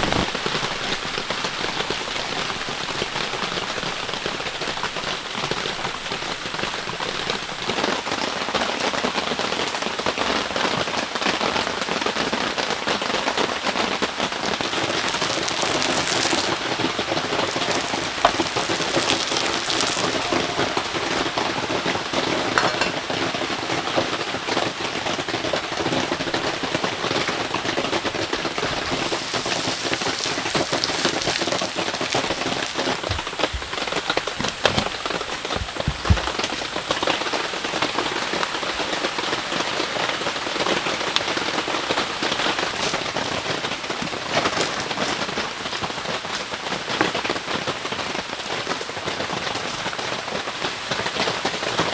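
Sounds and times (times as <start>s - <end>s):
heavy rain falling: 13.9s - 22.1s, 28.4s - 36.5s
sharp water drips: 14.3s - 21.4s, 28.6s - 33.7s.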